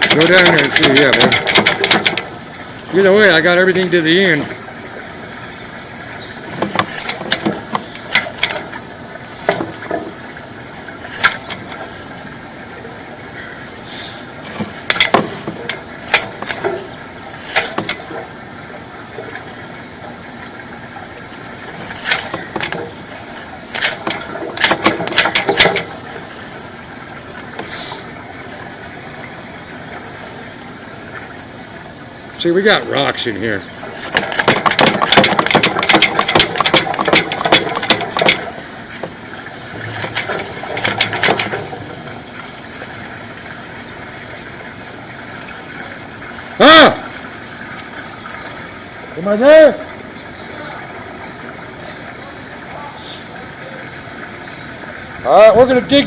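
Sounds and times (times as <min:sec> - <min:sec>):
equipment clicks and knocks: 0:00.0 - 0:03.0, 0:06.5 - 0:08.8, 0:09.4 - 0:10.4, 0:14.4 - 0:18.2, 0:21.8 - 0:23.1, 0:23.7 - 0:26.2, 0:34.0 - 0:42.1.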